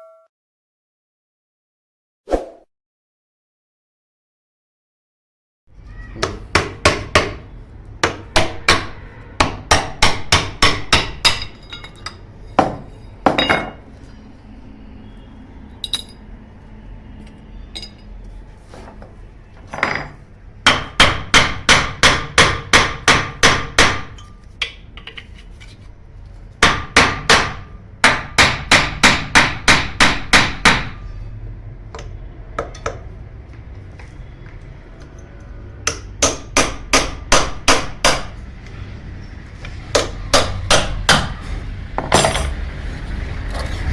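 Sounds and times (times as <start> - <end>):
hammer striking metal: 8.0 - 13.8, 35.8 - 38.4, 39.9 - 42.6.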